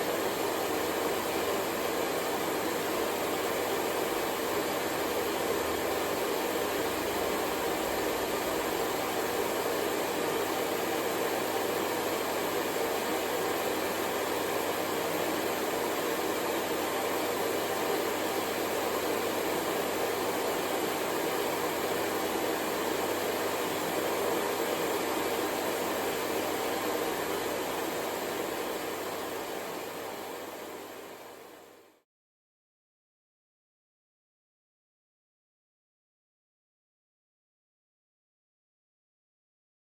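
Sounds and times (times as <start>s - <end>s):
hair dryer blowing: 0.0s - 31.8s.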